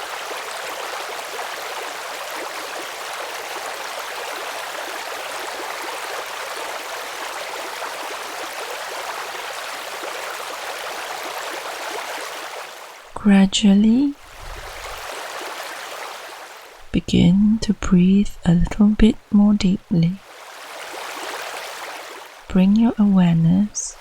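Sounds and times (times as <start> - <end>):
stream water rushing: 0.0 - 13.1, 14.2 - 16.9, 20.2 - 22.5.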